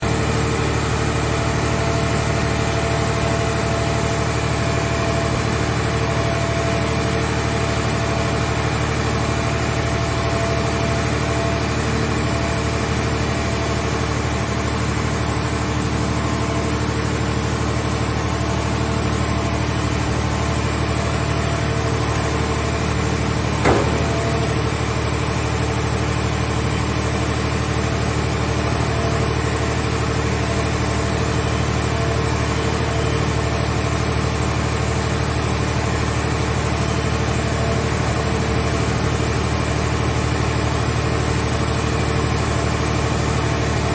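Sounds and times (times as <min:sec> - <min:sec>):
baler engine running: 0:00.0 - 0:43.9
sharp knock: 0:23.6 - 0:24.7.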